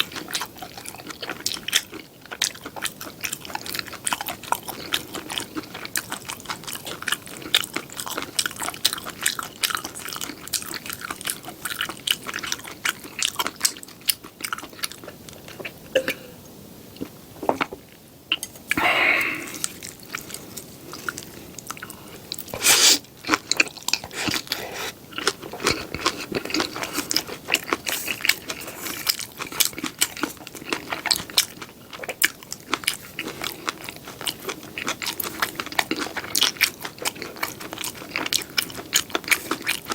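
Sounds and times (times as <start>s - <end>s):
crunchy chewing: 0.0s - 15.8s, 18.3s - 39.9s
wet mouth clicks: 16.0s - 16.3s, 23.9s - 25.0s.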